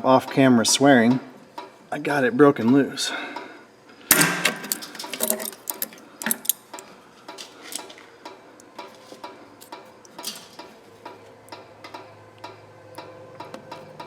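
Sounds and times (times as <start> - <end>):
hand ratchet clicking: 4.1 - 6.8.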